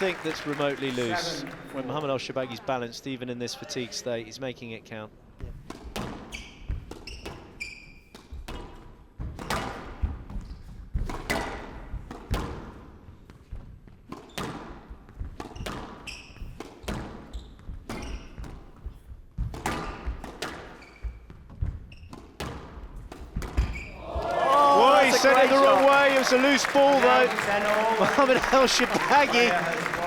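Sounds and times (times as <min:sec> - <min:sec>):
shoes squeaking on court floor: 0:06.1 - 0:09.0, 0:15.5 - 0:18.9, 0:19.7 - 0:22.8, 0:23.4 - 0:30.0.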